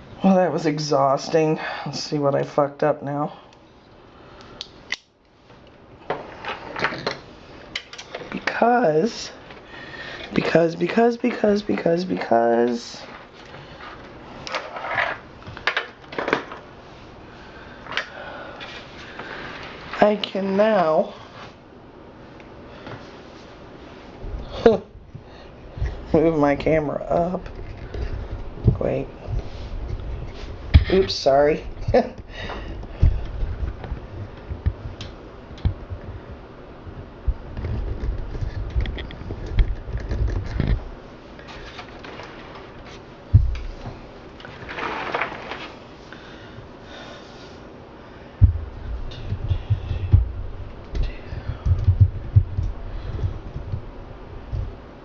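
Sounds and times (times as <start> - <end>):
rustling: 37.8 - 46.0
low rumbling: 48.3 - 54.9.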